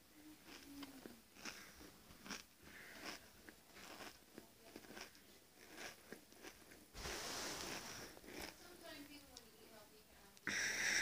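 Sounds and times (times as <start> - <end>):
crisps being chewed: 0.4 - 6.9, 7.6 - 9.4.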